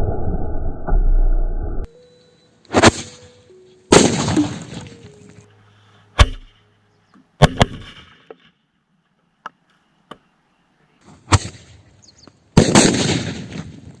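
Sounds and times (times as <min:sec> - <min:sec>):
firecrackers popping and banging: 0:12.6 - 0:14.0.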